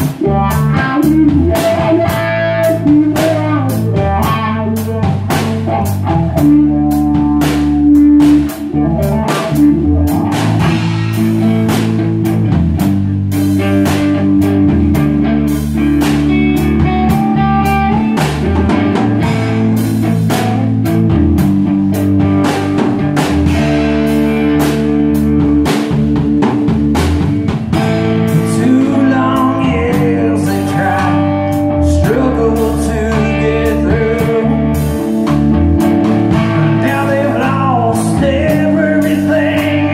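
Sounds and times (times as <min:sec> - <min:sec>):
blues-rock band playing: 0:00.0 - 0:39.9
steady drum beat: 0:00.0 - 0:39.9
wavering lead guitar lines: 0:00.0 - 0:39.9.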